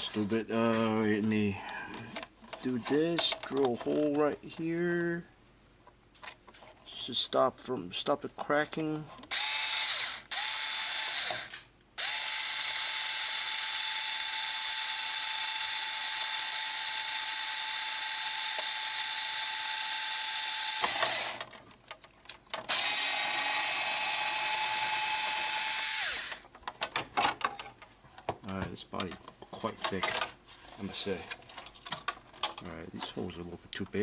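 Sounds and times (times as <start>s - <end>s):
electric screwdriver drilling plastic: 9.3s - 21.5s, 22.7s - 26.4s.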